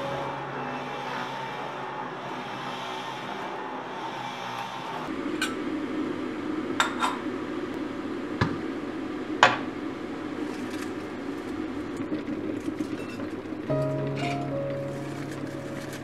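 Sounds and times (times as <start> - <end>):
steady low hum: 5.0 - 16.0.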